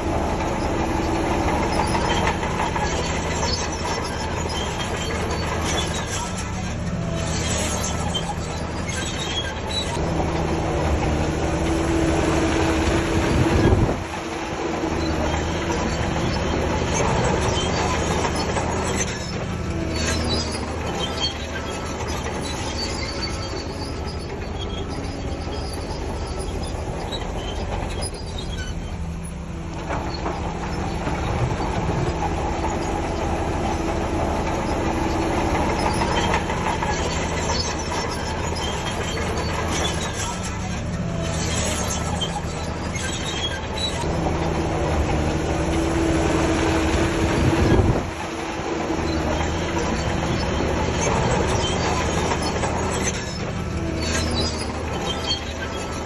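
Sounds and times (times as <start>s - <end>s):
diesel earthmoving machine running: 0.0s - 56.0s.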